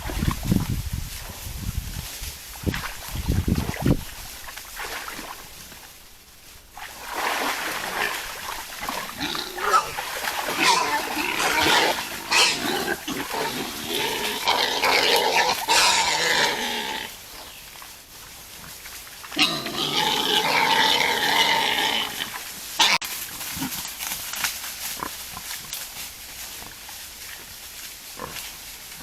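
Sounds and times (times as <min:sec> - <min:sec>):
wild boars squealing: 0:09.2 - 0:17.2, 0:19.4 - 0:23.0.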